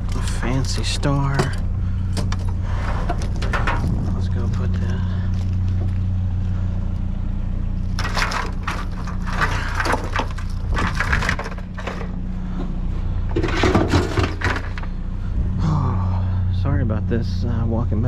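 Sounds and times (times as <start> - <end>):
objects crunching and clattering: 0.0 - 6.1, 7.8 - 12.7, 13.3 - 15.0
vehicle engine idling: 0.0 - 18.0.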